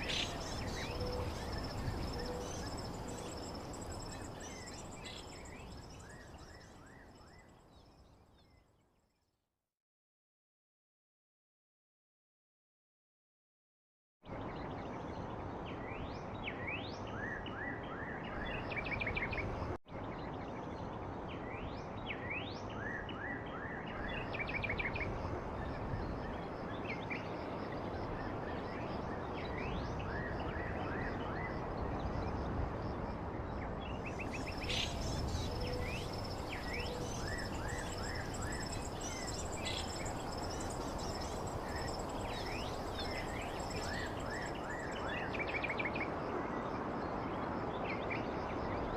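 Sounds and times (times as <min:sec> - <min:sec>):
insects trilling: 0:00.0 - 0:06.6, 0:34.2 - 0:45.2
birds chirping: 0:00.0 - 0:06.8, 0:34.1 - 0:45.0
steady background hiss: 0:00.0 - 0:07.0, 0:34.0 - 0:46.6.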